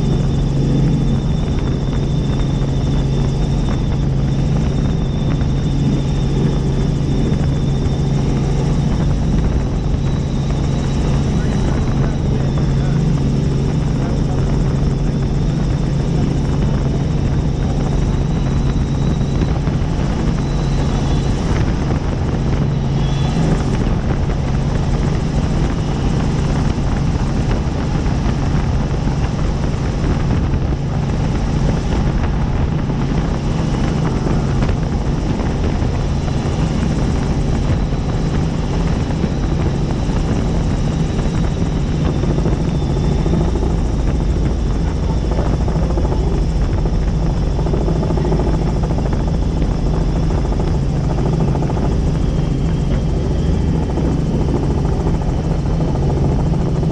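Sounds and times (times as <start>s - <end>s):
helicopter rotor and engine drone: 0.0s - 56.9s.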